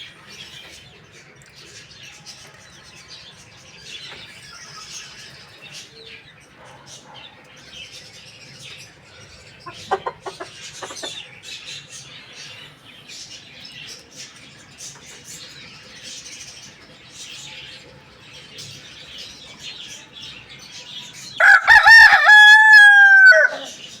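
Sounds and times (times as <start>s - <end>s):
small birds chirping faintly: 0.0s - 24.0s
chicken clucking: 9.3s - 11.4s
rooster crowing: 21.4s - 23.8s.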